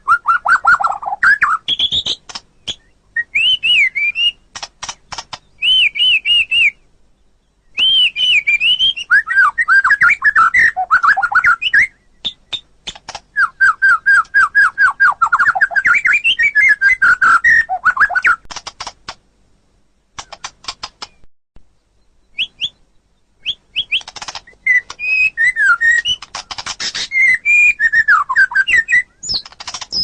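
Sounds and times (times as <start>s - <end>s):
bird singing whistled notes: 0.0s - 4.4s, 5.4s - 18.4s, 21.8s - 26.2s, 26.8s - 30.0s
bird sharp clicks: 1.7s - 2.9s, 4.1s - 5.8s, 10.4s - 13.4s, 17.0s - 19.2s, 20.2s - 21.3s, 23.4s - 27.4s, 28.4s - 30.0s.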